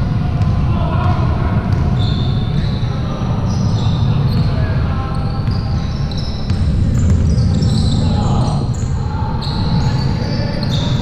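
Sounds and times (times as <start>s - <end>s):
low hall rumble: 0.0s - 11.0s
basketball bouncing: 0.4s - 2.0s, 6.4s - 7.7s
sneakers squeaking on floor: 1.1s - 11.0s.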